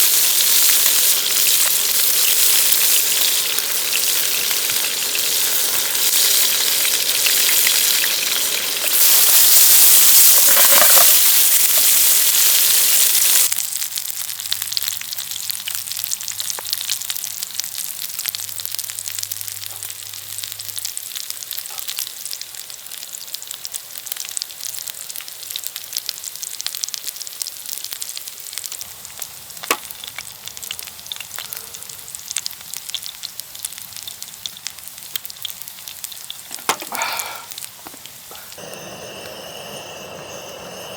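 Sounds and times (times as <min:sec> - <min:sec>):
food sizzling in frying pan: 0:00.0 - 0:40.9.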